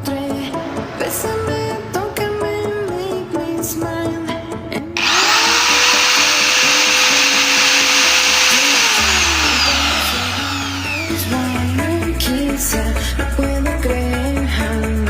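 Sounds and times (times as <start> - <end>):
background music: 0.0 - 15.0
electric angle grinder whining: 5.0 - 12.0.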